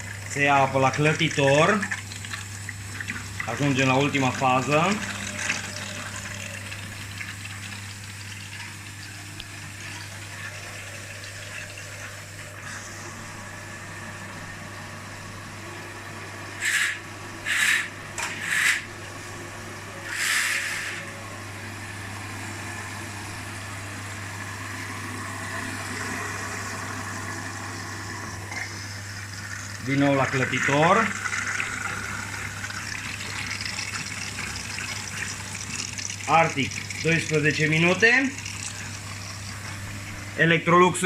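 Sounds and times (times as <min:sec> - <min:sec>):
water running in: 0:00.0 - 0:15.6, 0:21.6 - 0:41.0
washing machine humming: 0:00.0 - 0:41.0
short hissing spurts: 0:16.6 - 0:18.8.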